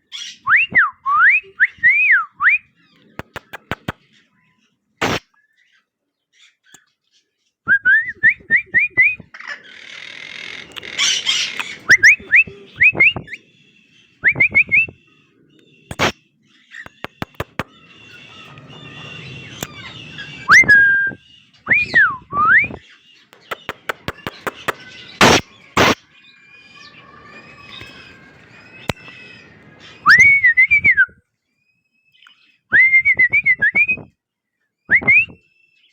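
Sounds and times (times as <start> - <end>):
sharp clicks: 3.2 - 4.0, 5.0 - 5.2, 15.9 - 16.1, 16.9 - 18.7, 23.3 - 26.0
cockatiel whistling and chirping: 11.2 - 13.4, 14.2 - 15.0, 16.8 - 26.0, 27.5 - 31.1.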